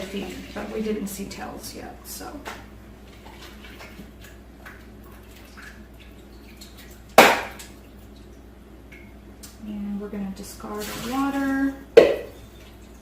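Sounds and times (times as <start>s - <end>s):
water drips: 2.3s - 9.7s
loud sharp knock: 7.2s - 7.6s.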